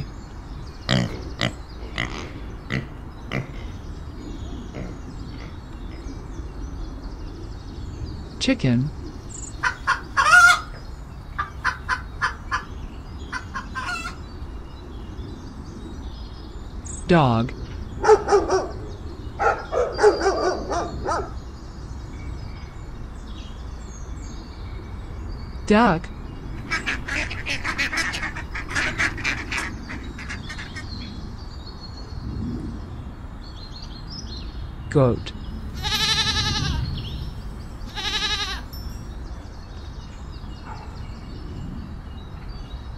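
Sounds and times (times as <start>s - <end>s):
chicken squawking: 9.6s - 10.7s, 11.4s - 12.7s, 13.3s - 14.2s, 26.6s - 30.9s, 35.8s - 36.8s, 37.9s - 38.7s
duck quacking: 26.7s - 30.8s.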